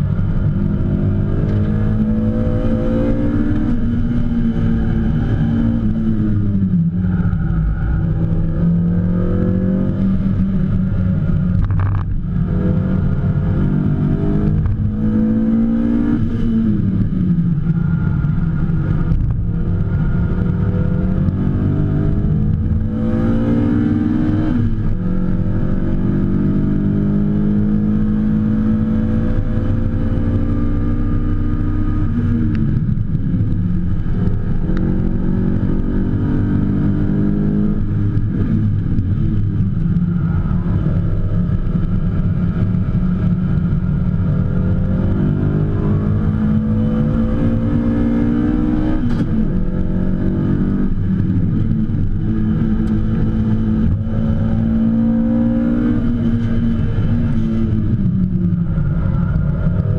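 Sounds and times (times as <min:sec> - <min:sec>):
car engine revving from inside: 0:00.0 - 0:59.9.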